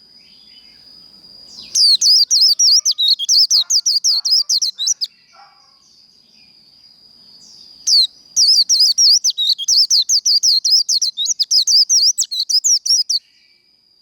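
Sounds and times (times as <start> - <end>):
bird singing high whistled notes: 1.5 - 5.5, 7.4 - 13.5.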